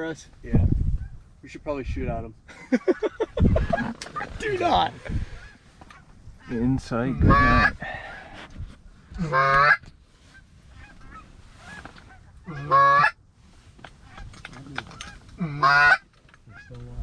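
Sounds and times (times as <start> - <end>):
goose-like honks: 5.2 - 7.8, 9.2 - 13.2, 14.9 - 16.8.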